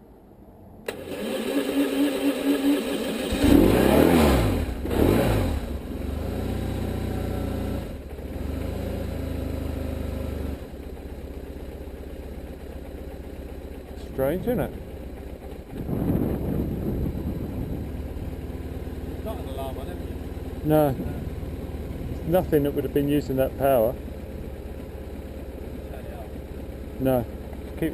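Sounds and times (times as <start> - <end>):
motorcycle starter cranking: 0.9 - 3.9
motorcycle engine revving: 0.9 - 27.9
motorcycle engine idling: 5.6 - 27.9.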